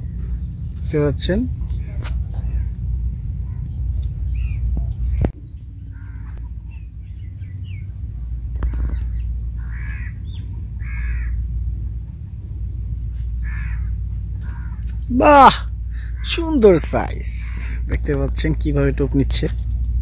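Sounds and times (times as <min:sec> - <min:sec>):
low rumble: 0:00.0 - 0:20.0
faint bird chirps: 0:01.6 - 0:15.0
harsh bird caws: 0:01.7 - 0:03.6, 0:04.3 - 0:05.2, 0:05.8 - 0:07.8, 0:08.6 - 0:11.7, 0:13.1 - 0:16.6.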